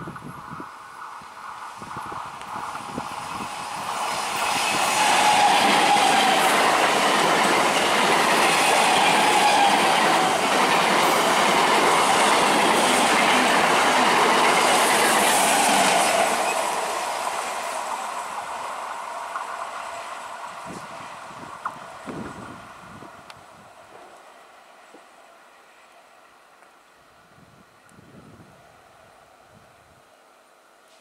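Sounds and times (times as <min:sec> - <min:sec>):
train wheels clattering over rail joints: 0:04.0 - 0:16.3.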